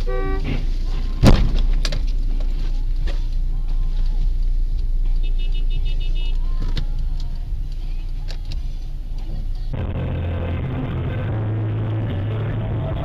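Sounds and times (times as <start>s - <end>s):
road and engine noise: 0.0s - 13.0s
car collision bang: 1.2s - 1.9s.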